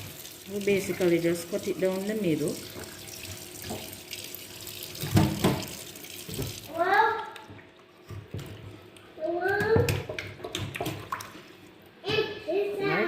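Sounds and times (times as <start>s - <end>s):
tap running into sink: 2.5s - 4.2s, 4.8s - 6.7s.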